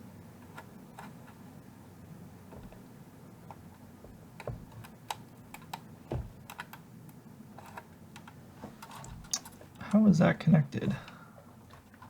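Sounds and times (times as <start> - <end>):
heavier knock: 6.1 - 6.4.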